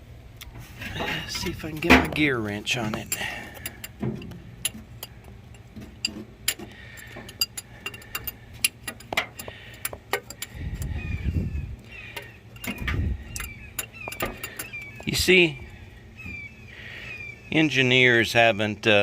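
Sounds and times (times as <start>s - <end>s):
dull low rumbles from handling: 0.0s - 18.2s
ratcheting wrench clicks: 4.6s - 10.9s, 12.2s - 15.1s.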